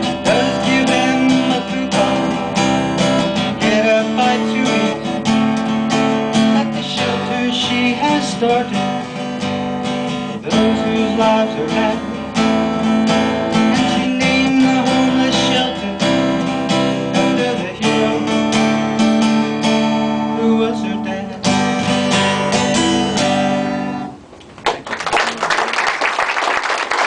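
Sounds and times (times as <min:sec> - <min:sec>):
guitar strumming chords: 0:00.0 - 0:24.2
audience applause: 0:24.6 - 0:27.0.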